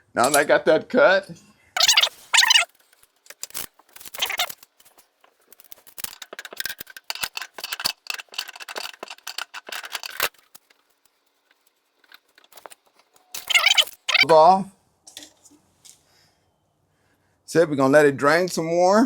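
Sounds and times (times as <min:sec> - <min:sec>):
metallic clicking and clattering: 0:01.8 - 0:14.2.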